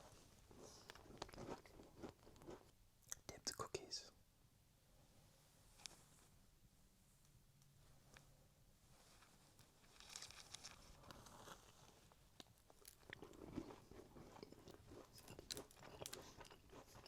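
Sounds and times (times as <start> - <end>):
chewing a cookie: 0.5 - 3.3, 9.6 - 17.0.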